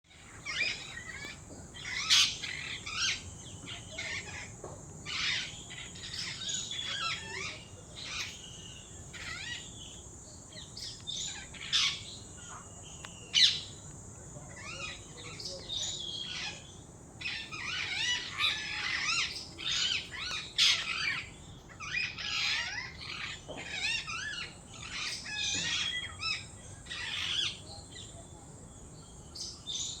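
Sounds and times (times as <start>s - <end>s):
birds chirping and singing: 0.1s - 30.0s.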